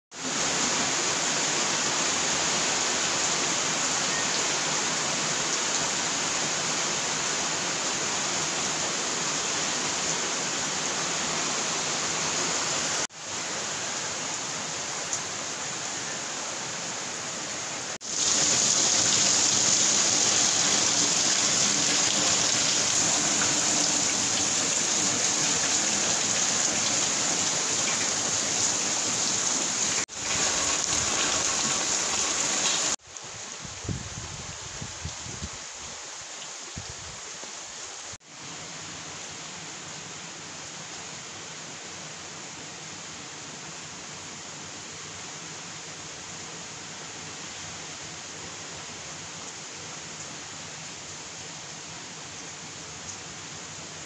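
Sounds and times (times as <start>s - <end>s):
heavy rain falling: 17.2s - 33.0s.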